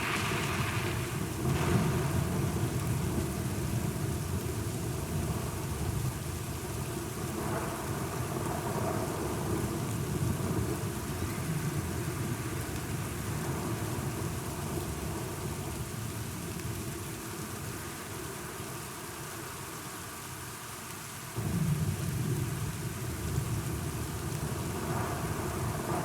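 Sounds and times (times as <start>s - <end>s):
thunder rumbling: 0.0s - 4.2s
steady rain: 0.0s - 26.0s.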